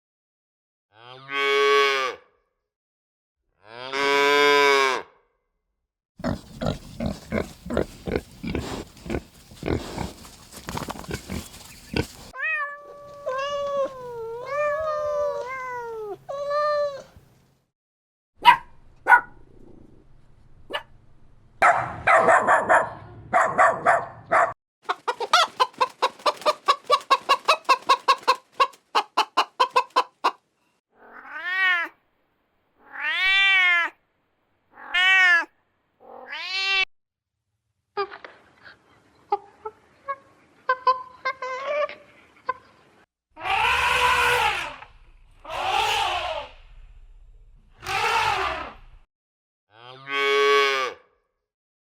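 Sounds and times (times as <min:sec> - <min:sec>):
animal grunting or clucking: 0:06.2 - 0:12.3, 0:24.9 - 0:30.4
cat meowing: 0:12.4 - 0:16.1
wavering pitched animal calls: 0:43.4 - 0:46.6, 0:47.8 - 0:48.9.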